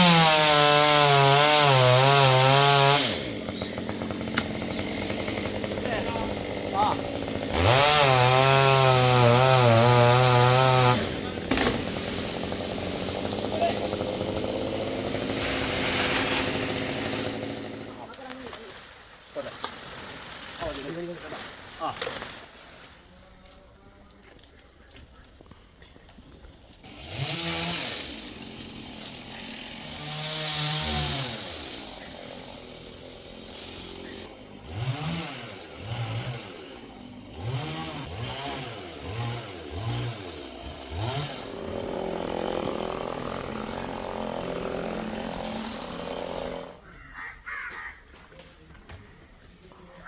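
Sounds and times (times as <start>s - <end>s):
chainsaw revving: 0.0s - 18.4s, 26.8s - 46.8s.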